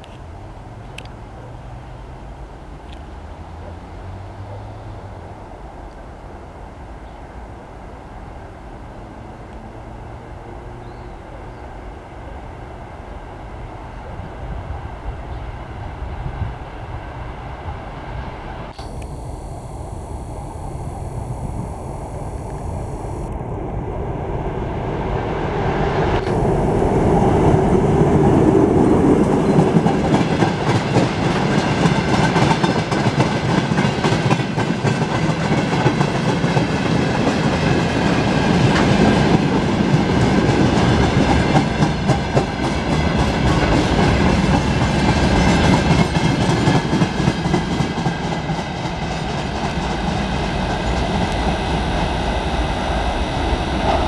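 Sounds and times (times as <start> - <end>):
diesel locomotive engine: 0.0 - 54.0
train wheels clacking on rails: 27.1 - 54.0.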